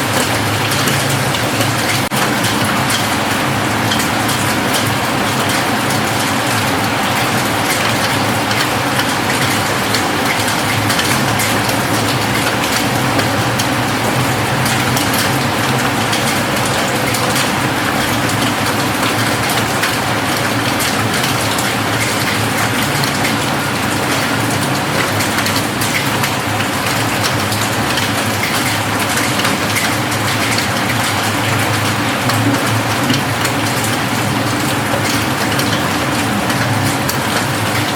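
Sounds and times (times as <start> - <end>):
rain on a roof: 0.0 - 37.9.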